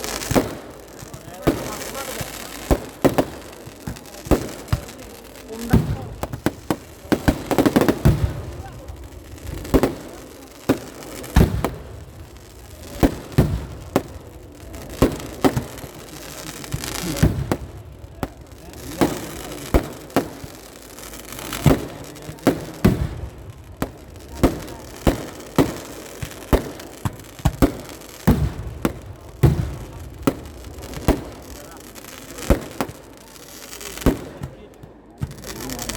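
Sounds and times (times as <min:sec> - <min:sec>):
fireworks explosions: 0:00.0 - 0:35.9.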